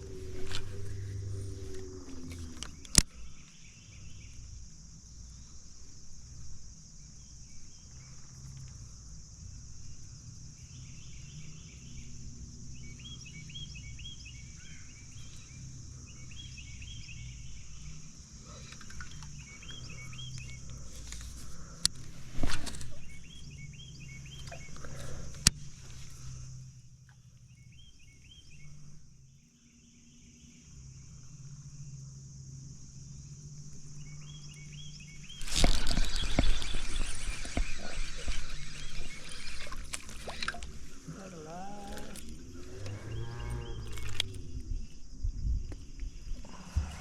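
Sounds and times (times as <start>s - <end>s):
steady high drone: 0.0s - 4.3s, 19.4s - 45.4s
low rumble of river: 0.0s - 47.0s
short chirping calls: 12.8s - 26.5s, 34.0s - 44.6s.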